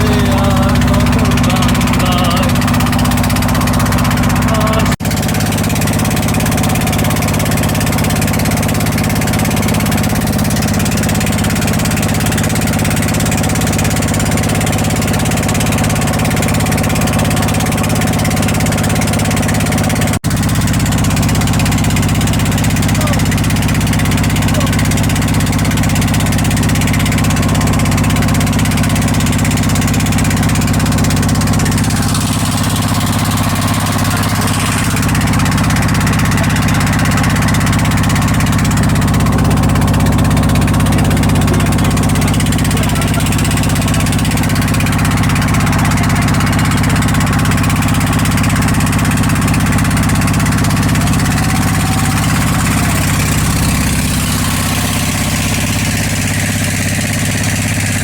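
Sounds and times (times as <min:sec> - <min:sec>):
boat engine humming: 0:00.0 - 0:58.0
water noise: 0:00.0 - 0:58.0.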